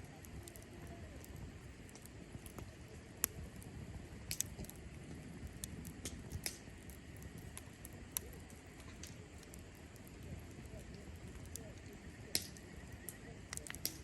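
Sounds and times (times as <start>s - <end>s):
campfire crackling and popping: 0.0s - 14.0s
low rumble of flame: 0.0s - 14.0s.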